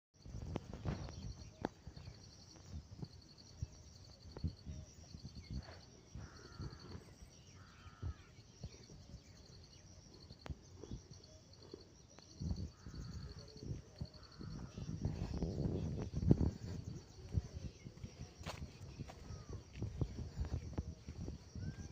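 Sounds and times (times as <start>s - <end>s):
insects chirping: 0.2s - 21.9s
bird calls: 4.7s - 21.9s.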